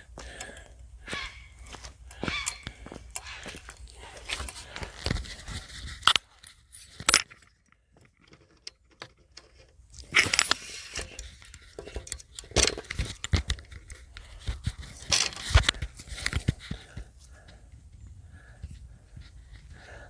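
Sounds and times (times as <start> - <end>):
footsteps crunching: 0.2 - 7.0
camera handling noise: 2.0 - 7.3, 10.0 - 16.9.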